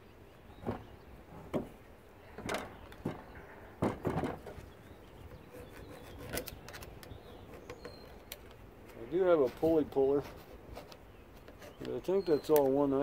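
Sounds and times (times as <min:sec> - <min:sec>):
knocks and clunks of handled tools: 0:00.6 - 0:01.8, 0:02.4 - 0:04.7.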